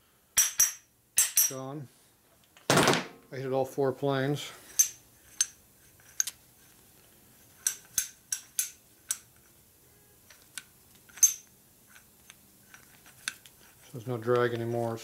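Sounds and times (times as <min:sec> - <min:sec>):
metal parts and tools clinking: 0:00.4 - 0:01.6, 0:04.7 - 0:06.4, 0:11.1 - 0:12.0.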